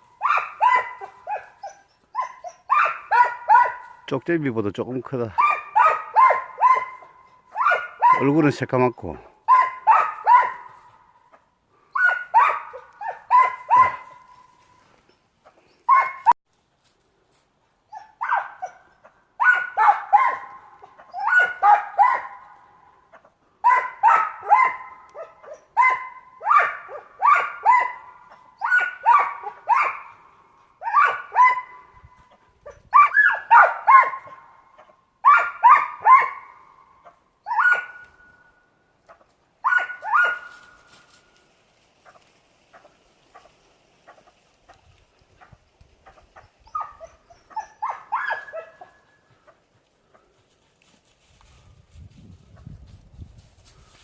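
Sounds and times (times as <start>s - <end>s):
marten yelping calls: 0.1s - 4.1s, 5.2s - 14.6s, 15.9s - 16.4s, 17.9s - 22.4s, 23.1s - 30.2s, 30.8s - 31.9s, 32.7s - 38.4s, 39.1s - 40.6s, 45.4s - 49.6s.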